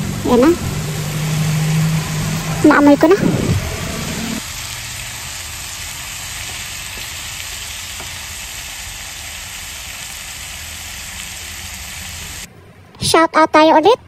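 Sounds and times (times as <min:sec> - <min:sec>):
chicken and vegetables sizzling in a pan: 0:04.4 - 0:12.5.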